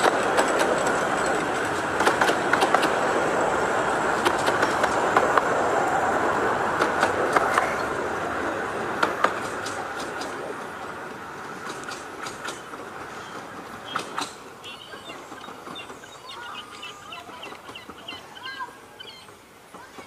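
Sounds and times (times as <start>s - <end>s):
train coaches rumbling: 0.0s - 20.0s
wheels clicking over rail joints: 0.0s - 20.0s.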